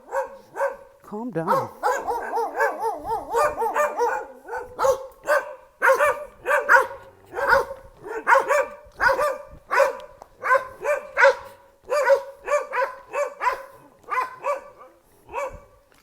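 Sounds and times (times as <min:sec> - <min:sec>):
dog barking: 0:00.0 - 0:15.8.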